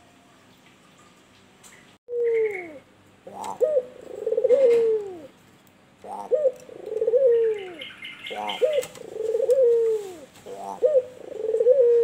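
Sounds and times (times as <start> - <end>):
dove cooing: 2.1 - 5.3, 6.0 - 12.0.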